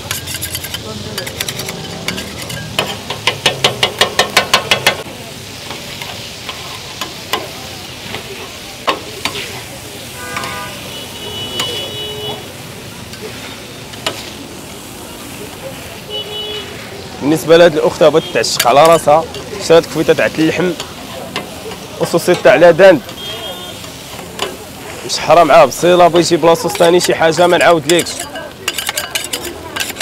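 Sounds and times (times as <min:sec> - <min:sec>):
metal utensil scraping: 0:00.0 - 0:05.0, 0:17.3 - 0:30.0
food sizzling in a pan: 0:00.0 - 0:30.0.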